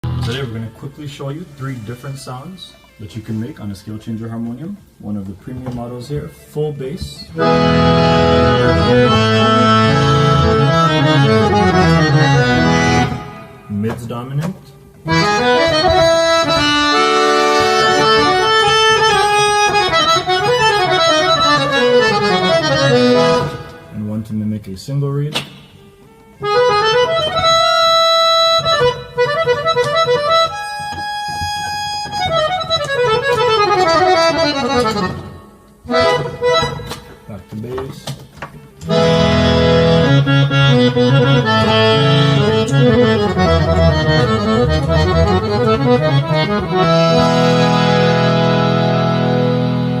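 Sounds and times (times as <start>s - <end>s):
harmonium playing: 7.3s - 14.0s, 15.0s - 24.0s, 26.0s - 37.4s, 38.6s - 50.0s.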